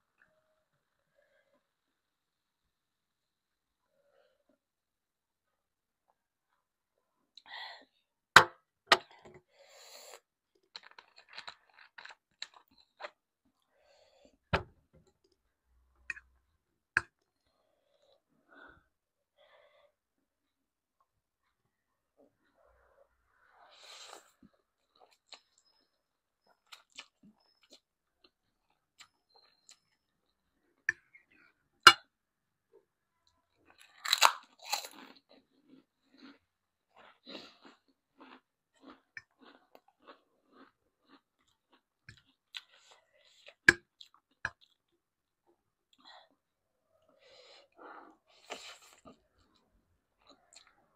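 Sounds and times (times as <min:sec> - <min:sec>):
chewing: 0:33.6 - 0:44.9
crunchy biting and chewing: 0:33.8 - 0:36.5.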